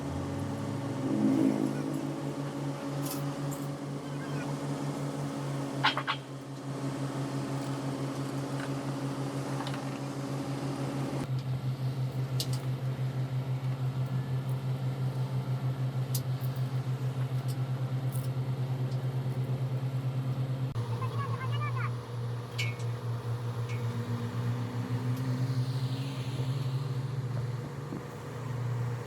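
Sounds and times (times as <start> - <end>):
motor running with fast pulse: 20.7 - 29.0.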